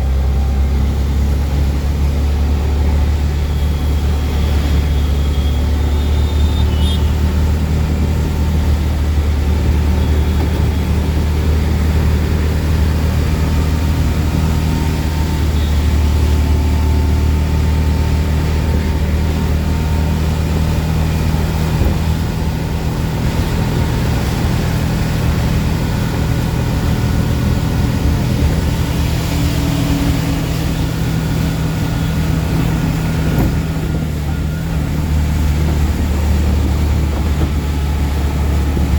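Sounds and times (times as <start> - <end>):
auto rickshaw engine humming: 0.0 - 38.9
road and rain noise: 0.0 - 38.9.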